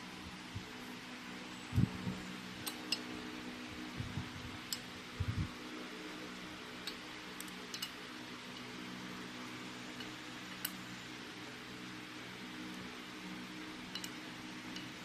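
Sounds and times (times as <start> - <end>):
steady low hum: 0.0 - 15.0
tools clicking: 13.9 - 14.9.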